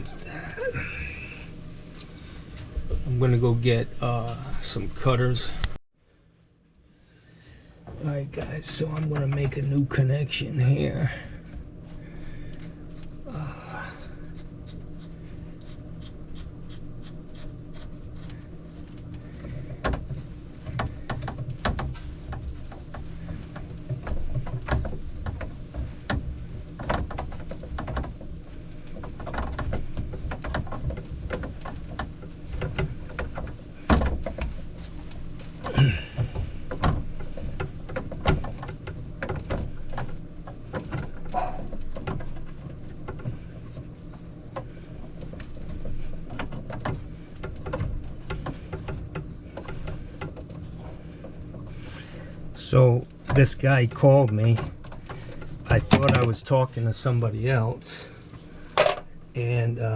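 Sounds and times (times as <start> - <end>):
steady low hum: 0.0 - 59.9
tools and pipe fittings clicking: 58.8 - 59.1.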